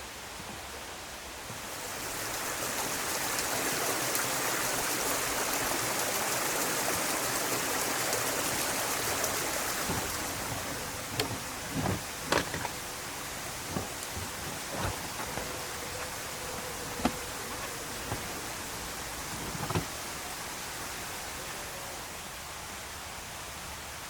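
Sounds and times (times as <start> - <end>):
stream water running: 0.0 - 24.0
soft knocks: 9.8 - 13.0, 13.6 - 16.2, 16.8 - 18.5, 19.4 - 20.0.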